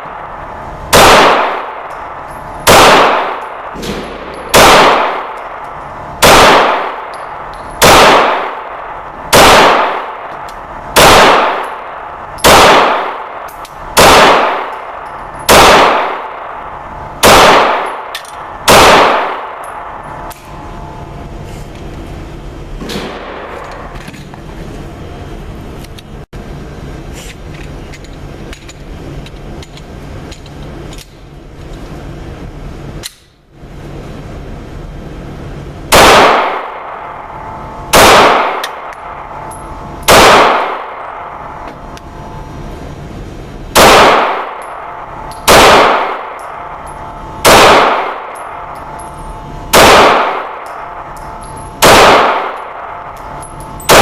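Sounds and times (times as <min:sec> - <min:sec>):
pistol shots echoing indoors: 0:00.0 - 0:21.1, 0:35.9 - 0:42.5, 0:43.7 - 0:49.1, 0:49.7 - 0:54.0
steady background hum: 0:00.0 - 0:54.0.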